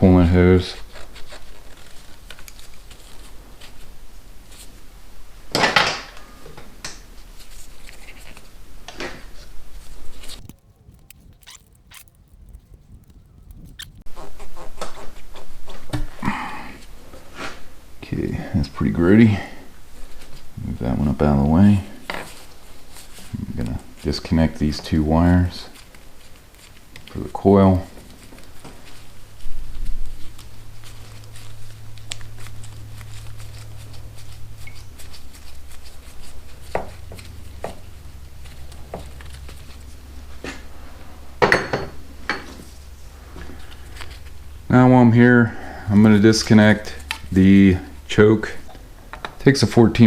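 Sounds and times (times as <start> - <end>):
rubber hose squeaking and scraping: 10.2 - 14.1
wire connectors clicking: 10.3 - 14.0.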